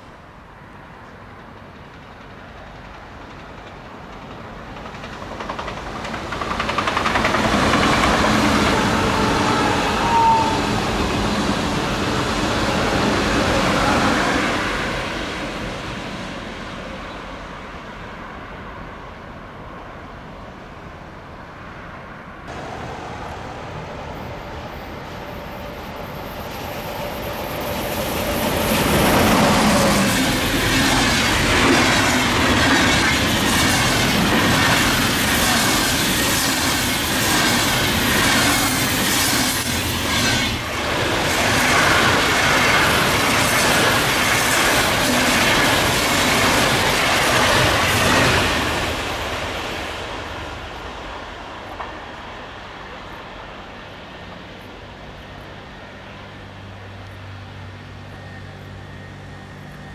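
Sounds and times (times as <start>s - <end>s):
electric locomotive approaching: 0.0s - 59.9s
high-speed train passing: 0.0s - 59.9s.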